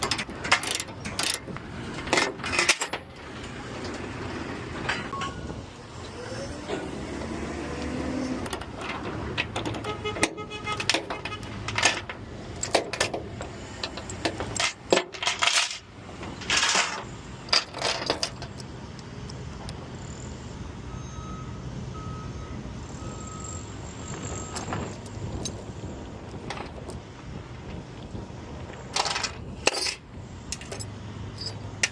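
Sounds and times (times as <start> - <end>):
metallic clinking and knocking: 0.0 - 3.2, 8.5 - 18.7
short beeps: 20.9 - 24.6.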